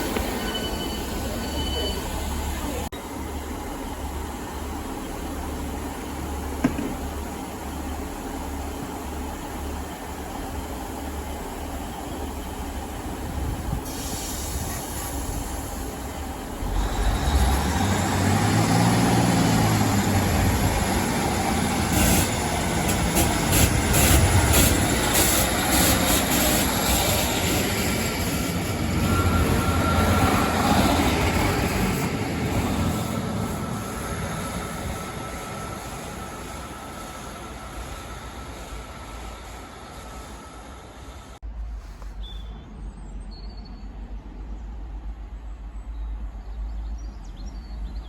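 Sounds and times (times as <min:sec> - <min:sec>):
train wheels squealing: 0:00.0 - 0:02.8, 0:16.7 - 0:41.0
train running on rails: 0:00.0 - 0:48.0.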